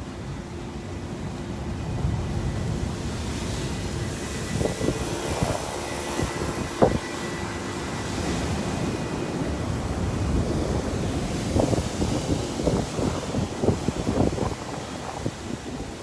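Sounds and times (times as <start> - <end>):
surf pounding rocky shore: 0.0 - 16.0
wind on microphone: 0.0 - 16.0.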